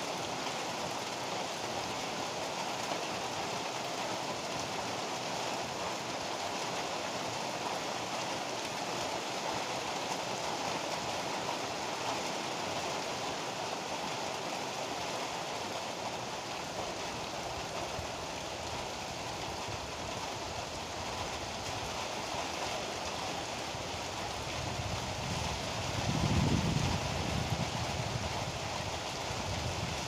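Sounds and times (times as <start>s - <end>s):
heavy rain pouring: 0.0s - 30.0s
thunder rumble: 24.7s - 28.3s.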